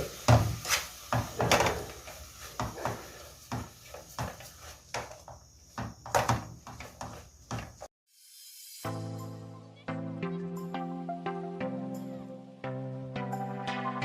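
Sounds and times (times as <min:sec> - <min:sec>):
pots and pans clattering: 0:00.0 - 0:04.5.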